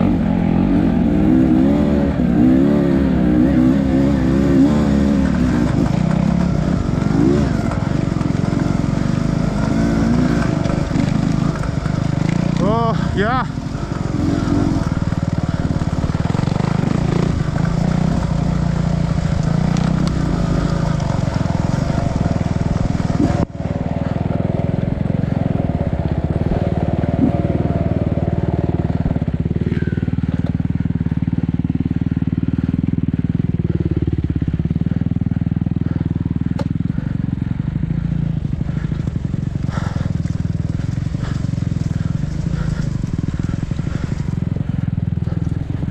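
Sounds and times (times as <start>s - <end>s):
dirt bike engine running: 0.0s - 45.9s.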